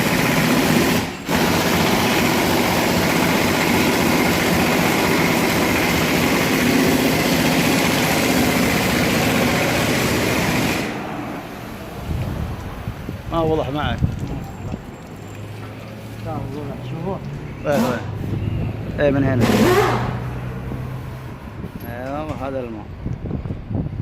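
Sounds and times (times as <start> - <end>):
water spray hissing on exhaust: 0.4 - 17.0.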